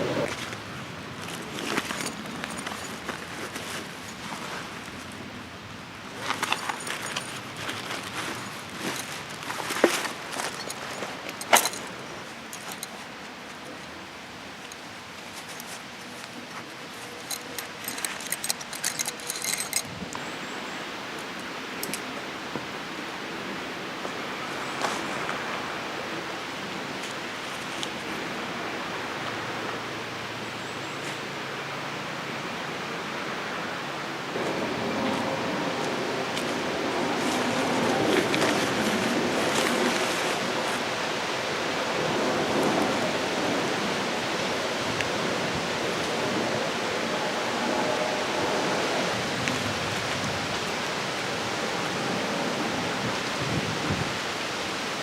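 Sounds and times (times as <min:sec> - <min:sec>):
small metallic clinks and jingles: 0:01.3 - 0:04.4, 0:06.2 - 0:13.2, 0:14.6 - 0:20.0, 0:21.8 - 0:22.2.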